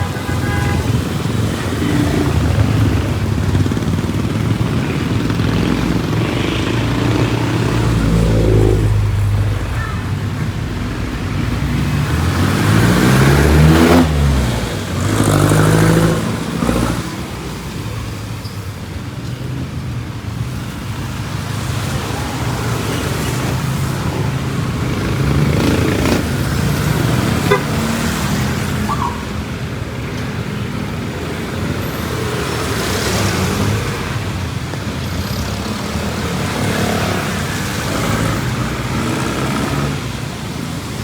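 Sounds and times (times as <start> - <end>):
vehicle engines running: 0.0 - 41.0
vehicle passing by: 1.2 - 17.5.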